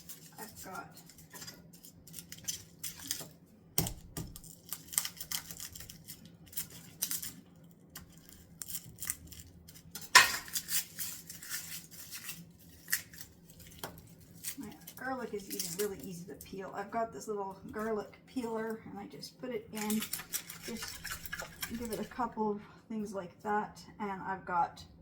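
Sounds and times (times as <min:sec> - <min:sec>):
onion being chopped: 0:03.0 - 0:05.8
kitchen tools clicking and clattering: 0:09.9 - 0:12.2, 0:19.8 - 0:22.2.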